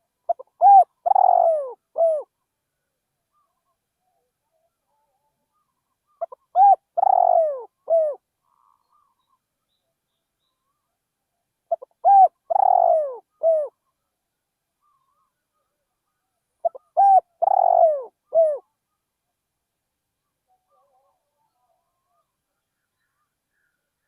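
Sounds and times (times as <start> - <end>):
dove cooing: 0.3 - 2.3, 5.5 - 9.1, 11.7 - 13.8, 16.6 - 18.7.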